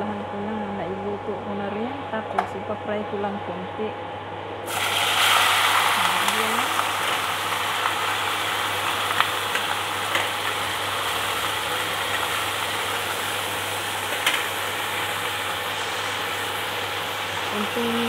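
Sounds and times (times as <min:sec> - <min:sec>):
steady low hum: 0:00.0 - 0:18.0
chicken sizzling in a pan: 0:04.7 - 0:18.0.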